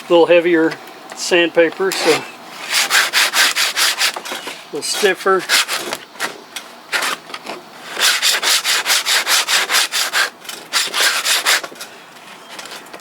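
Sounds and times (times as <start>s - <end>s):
sandpaper rasping through wood: 2.0s - 4.2s, 5.0s - 5.9s, 7.9s - 11.7s.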